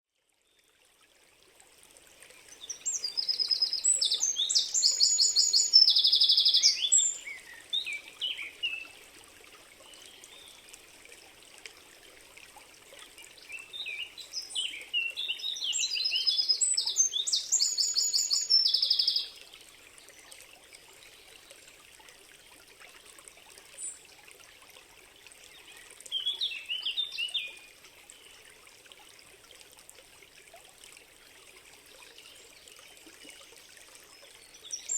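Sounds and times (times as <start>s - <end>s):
faint stream running water: 0.0s - 34.9s
songbird singing trilled notes: 2.6s - 8.9s, 13.4s - 19.4s.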